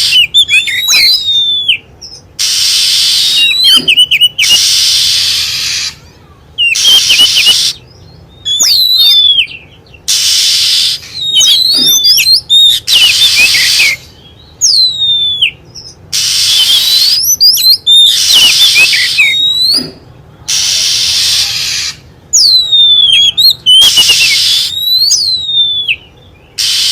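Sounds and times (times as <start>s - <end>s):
recorded bird song whistles: 0.0s - 26.9s
harsh hissy bird bursts: 2.4s - 6.0s, 6.7s - 7.8s, 10.1s - 14.2s, 16.1s - 17.2s, 17.9s - 19.8s, 20.5s - 22.1s, 23.8s - 24.8s, 26.6s - 26.9s.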